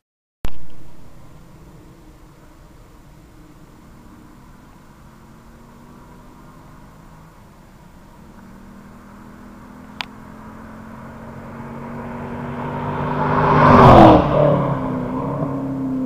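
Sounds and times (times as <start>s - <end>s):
car engine driving past: 0.5s - 16.0s.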